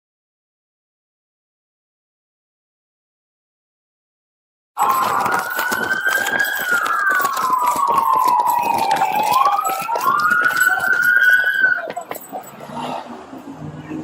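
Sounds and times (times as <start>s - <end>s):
police sirens wailing: 4.8s - 14.0s.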